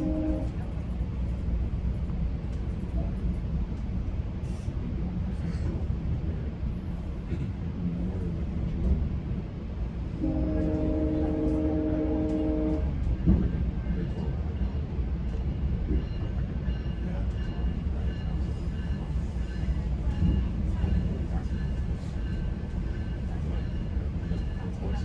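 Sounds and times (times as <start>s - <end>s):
train horn: 0.0s - 0.7s, 10.1s - 13.0s
train rumbling on rails: 0.0s - 25.0s.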